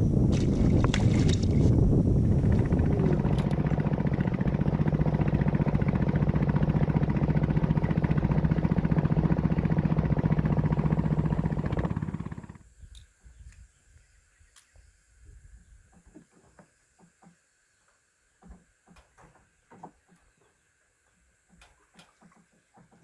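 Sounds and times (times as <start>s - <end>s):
small boat motor running: 2.4s - 12.7s.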